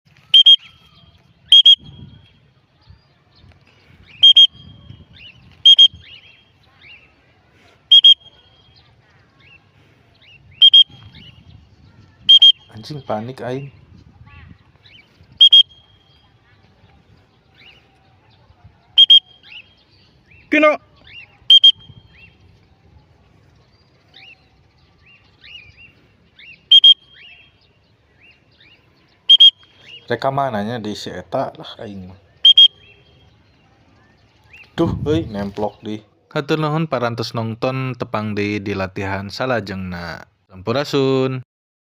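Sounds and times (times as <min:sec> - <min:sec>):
faint bird chirps: 0:00.1 - 0:07.2, 0:07.8 - 0:30.4, 0:31.8 - 0:35.6
whistle blasts: 0:00.3 - 0:00.8, 0:01.5 - 0:02.3, 0:04.1 - 0:04.9, 0:05.6 - 0:06.2, 0:07.9 - 0:08.4, 0:10.6 - 0:11.3, 0:12.3 - 0:12.7, 0:15.4 - 0:16.1, 0:19.0 - 0:19.6, 0:21.5 - 0:22.2, 0:26.7 - 0:27.3, 0:29.3 - 0:29.7, 0:32.4 - 0:33.0.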